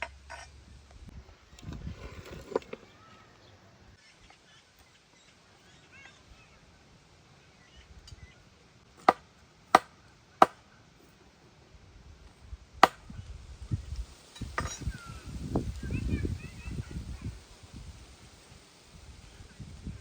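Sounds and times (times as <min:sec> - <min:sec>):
blade chopping wood: 0:09.0 - 0:10.6, 0:12.8 - 0:13.1.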